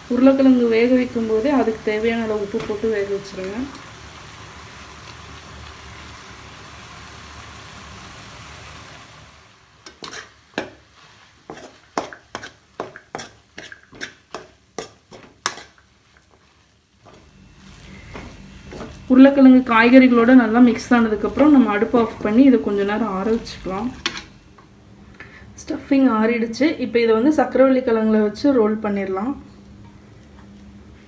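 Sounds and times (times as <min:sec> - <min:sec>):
food sizzling in a pan: 0:00.0 - 0:25.5, 0:26.1 - 0:31.0
spatula knocking and scraping pan: 0:09.8 - 0:24.5.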